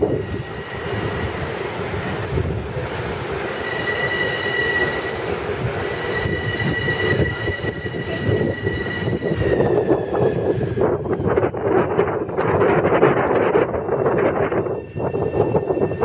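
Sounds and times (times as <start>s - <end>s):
train rumbling on rails: 0.0s - 16.0s
high brake squeal: 3.5s - 5.2s, 5.9s - 10.6s.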